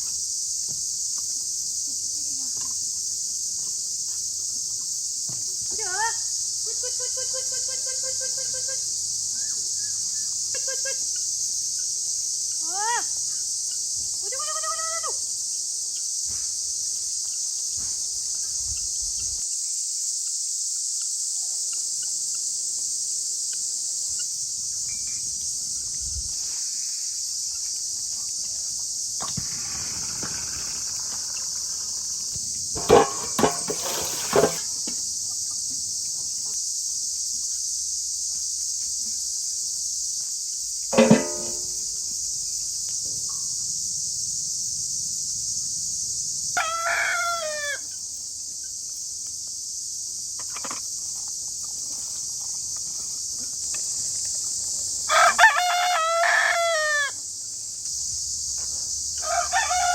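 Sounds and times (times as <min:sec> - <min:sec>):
crickets chirping: 0:00.0 - 0:59.9
sharp knocks: 0:41.0 - 0:41.8.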